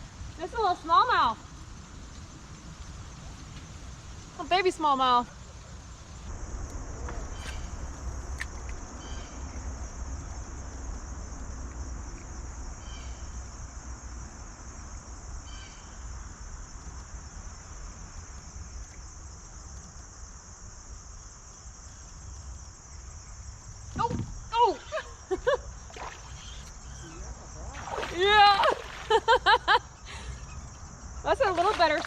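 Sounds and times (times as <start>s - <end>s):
high-pitched insect chorus: 0.0s - 32.0s
low rumble: 6.0s - 12.8s.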